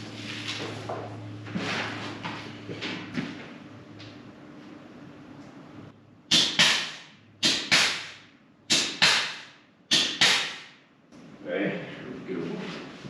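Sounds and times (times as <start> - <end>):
low steady hum: 0.0 - 6.3.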